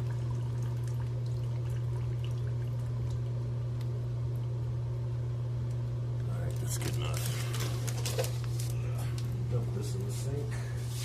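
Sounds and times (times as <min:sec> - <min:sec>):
water pouring into a container: 0:00.0 - 0:03.4
steady low hum: 0:00.0 - 0:11.0.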